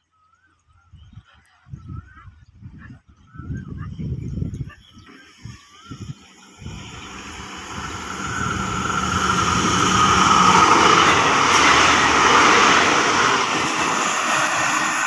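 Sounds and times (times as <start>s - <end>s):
train passing at speed: 5.9s - 15.0s.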